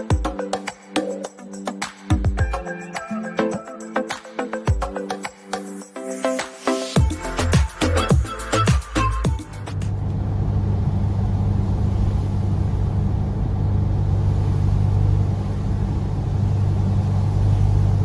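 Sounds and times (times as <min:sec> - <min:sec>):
car engine droning: 0:09.6 - 0:18.0.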